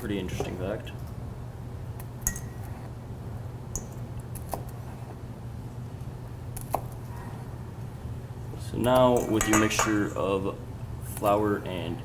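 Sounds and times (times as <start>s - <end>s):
steady low hum: 0.0s - 12.0s
utensils clinking against dishes: 9.1s - 10.2s.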